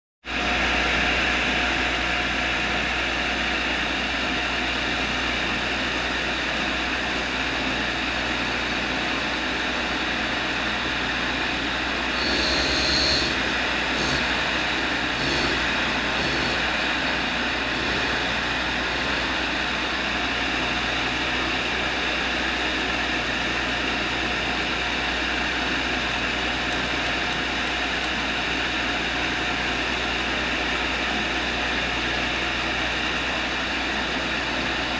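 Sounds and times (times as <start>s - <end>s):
machine running steadily: 0.3s - 34.9s
clicks: 26.7s - 28.2s.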